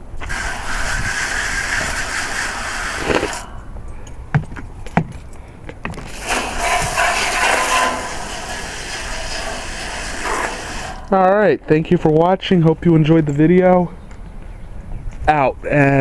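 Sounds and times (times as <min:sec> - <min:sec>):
water spraying from garden hose: 0:00.2 - 0:03.5, 0:06.1 - 0:11.1.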